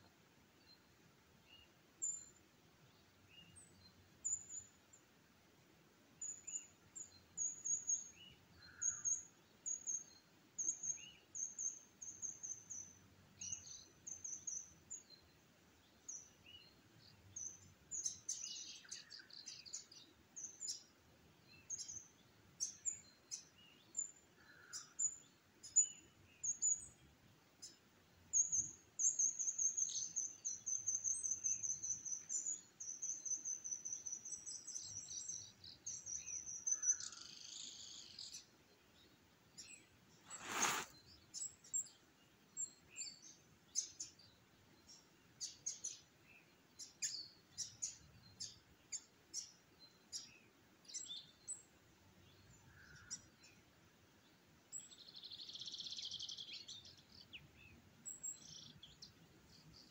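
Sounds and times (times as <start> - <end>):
small birds chirping: 0.0 - 59.9
sharp clicky bird calls: 7.4 - 15.1, 22.6 - 27.0, 27.6 - 38.4, 39.6 - 42.0, 52.5 - 53.6.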